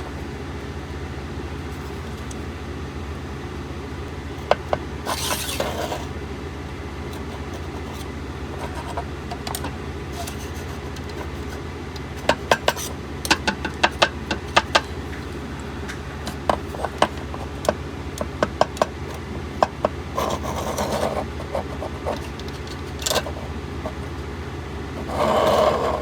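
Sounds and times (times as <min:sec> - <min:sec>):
steady low hum: 0:00.0 - 0:26.0
scraping rustle: 0:01.6 - 0:02.5, 0:05.0 - 0:06.2, 0:07.1 - 0:13.0, 0:25.0 - 0:26.0.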